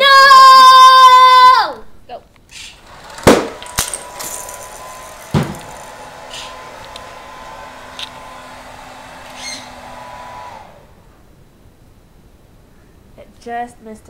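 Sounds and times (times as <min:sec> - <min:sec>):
hair dryer running: 0:02.8 - 0:11.1
sharp knock: 0:03.3 - 0:03.6, 0:05.3 - 0:05.6.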